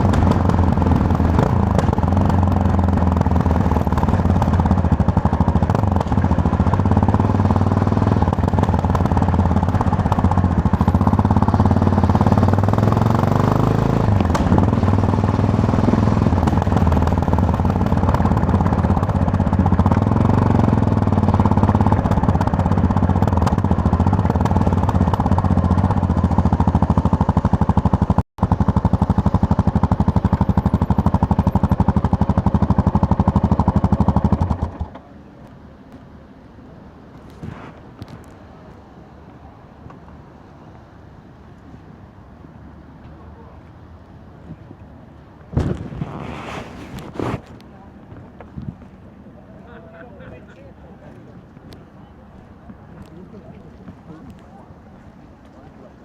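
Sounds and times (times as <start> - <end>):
motorcycle engine running: 0.0 - 35.1.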